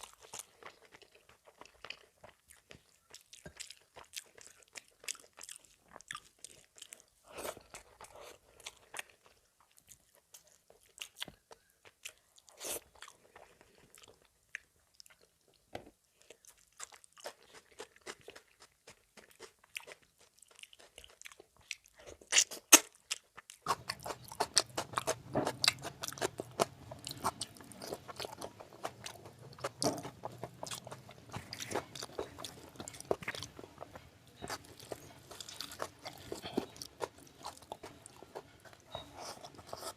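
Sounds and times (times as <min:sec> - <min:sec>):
person chewing food: 0:00.0 - 0:39.9
low steady hum: 0:23.7 - 0:39.9.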